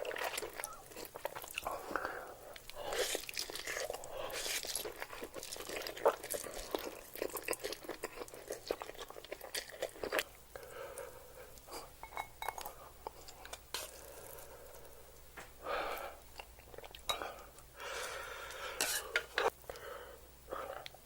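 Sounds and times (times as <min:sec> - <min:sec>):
breathy sounds: 0:17.2 - 0:21.0.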